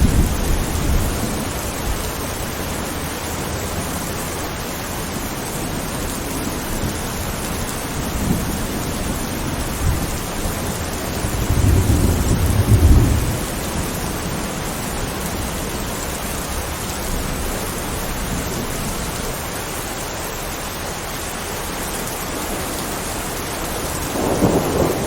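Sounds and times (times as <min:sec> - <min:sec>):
thunder rolling: 0:00.0 - 0:04.0, 0:07.8 - 0:19.0, 0:22.5 - 0:25.0
steady rain: 0:00.0 - 0:25.0.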